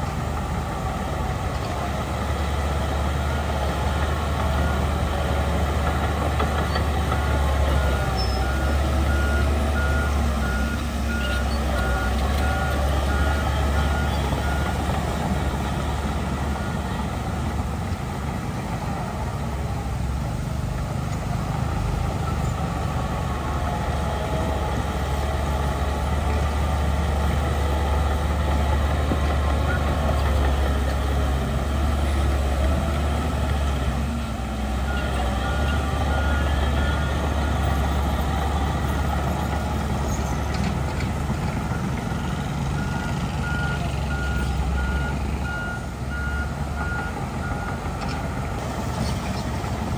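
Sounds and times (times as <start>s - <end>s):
heavy diesel machinery drone: 0.0s - 49.9s
reversing alarm beeping: 41.7s - 47.8s.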